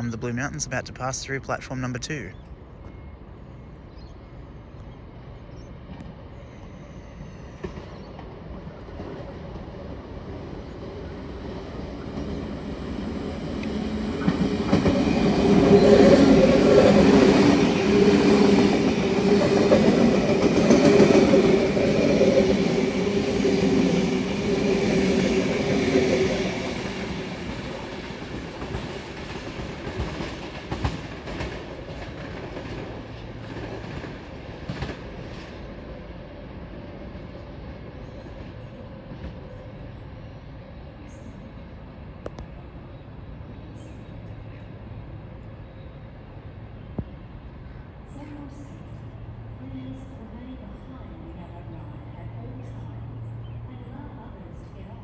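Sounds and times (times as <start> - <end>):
electric train passing: 0.0 - 55.0.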